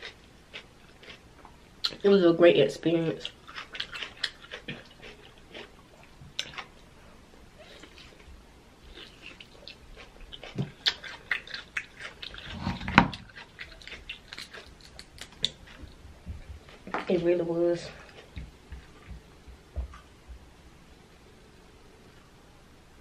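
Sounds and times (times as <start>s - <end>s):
wet chewing and lip-smacking: 0.0s - 1.2s, 3.2s - 6.9s, 7.6s - 17.2s.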